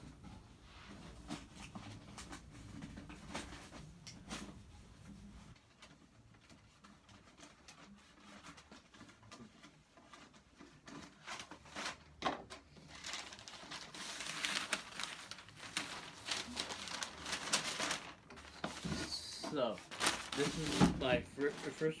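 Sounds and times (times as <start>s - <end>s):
packing paper rustling: 5.5s - 22.0s.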